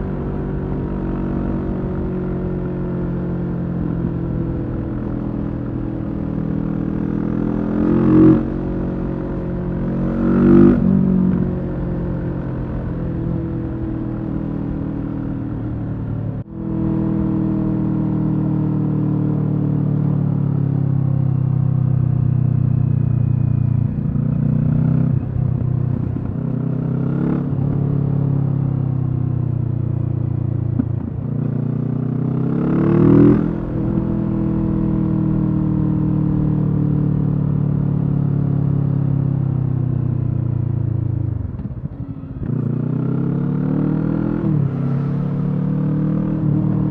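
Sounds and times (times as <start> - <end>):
motorcycle engine running: 0.0 - 46.9
engine revving: 41.6 - 46.9.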